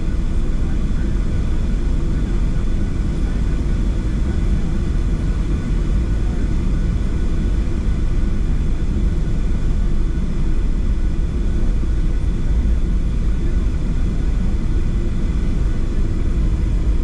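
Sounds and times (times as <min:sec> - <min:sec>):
airplane cabin rumble: 0:00.0 - 0:17.0
faint jet engine tones: 0:00.0 - 0:17.0.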